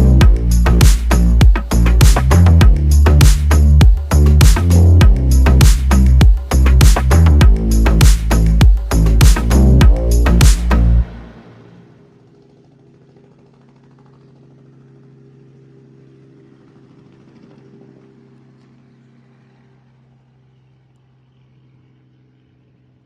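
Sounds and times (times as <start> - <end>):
distant helicopter drone: 10.0 - 23.0.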